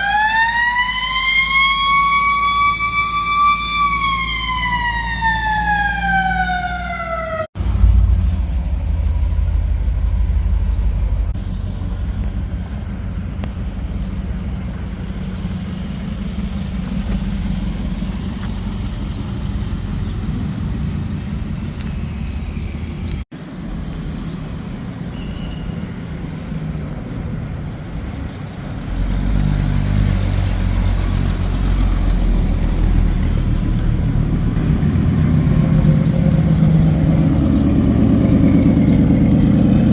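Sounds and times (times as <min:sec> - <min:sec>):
siren-like tone gliding down: 0:00.0 - 0:10.7
vehicle engines rumbling: 0:00.0 - 0:39.9.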